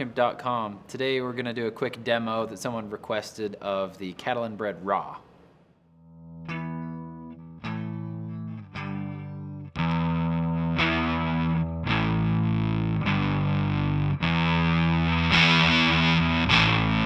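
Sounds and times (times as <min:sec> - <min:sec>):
distorted electric guitar chords: 0:06.1 - 0:17.0.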